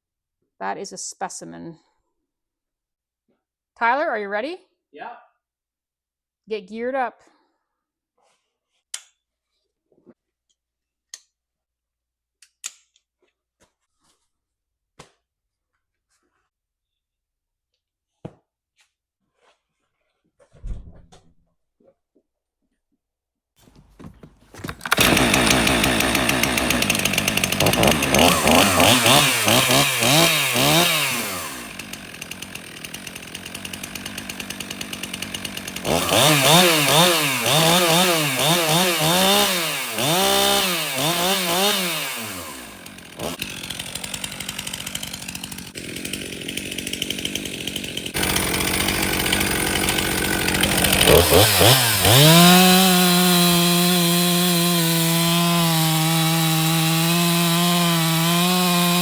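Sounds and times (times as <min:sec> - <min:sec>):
chainsaw revving: 0:24.7 - 0:59.0.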